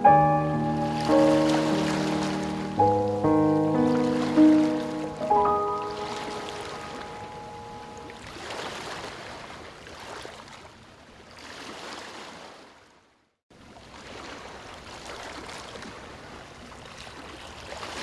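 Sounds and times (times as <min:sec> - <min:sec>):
ocean waves washing in: 0:00.0 - 0:09.6.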